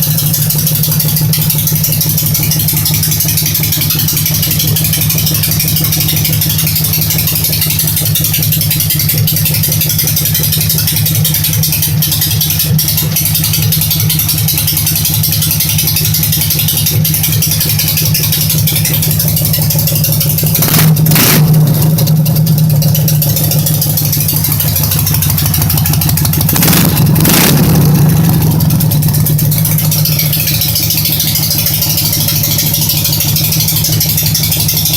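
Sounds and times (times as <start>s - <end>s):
motorcycle engine idling and revving: 0.0s - 34.9s.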